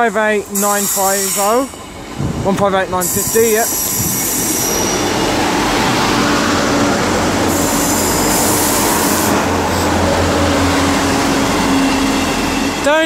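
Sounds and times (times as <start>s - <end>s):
diesel train engine and wheels rumbling: 0.0s - 13.0s
hiss: 0.6s - 1.7s.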